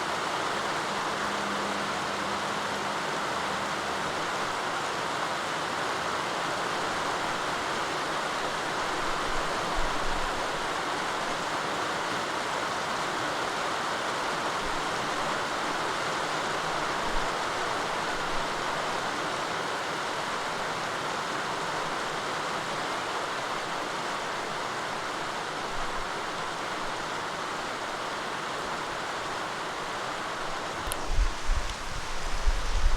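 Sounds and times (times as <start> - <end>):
steady rain: 0.0 - 32.9
click: 30.8 - 31.0.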